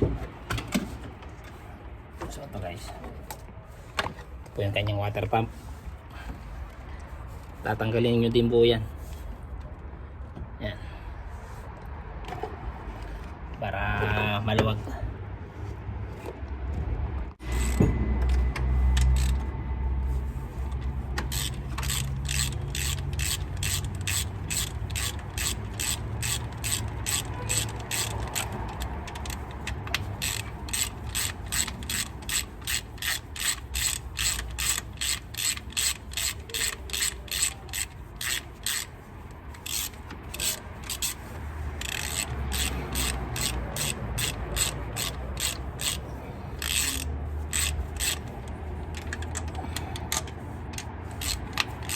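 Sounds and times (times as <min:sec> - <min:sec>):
ratchet wrench clicking: 0:17.4 - 0:19.5, 0:20.7 - 0:51.9.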